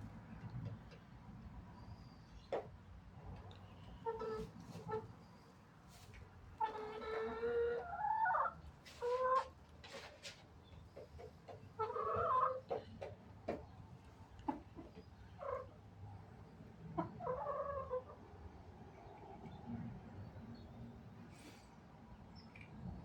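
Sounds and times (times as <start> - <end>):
hens clucking: 6.6 - 9.6, 11.0 - 13.2.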